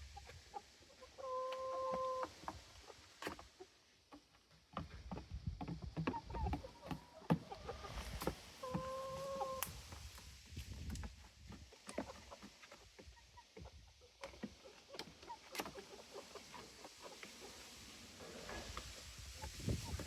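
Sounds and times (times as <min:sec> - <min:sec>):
chickens calling: 0:00.2 - 0:03.1, 0:06.1 - 0:09.7.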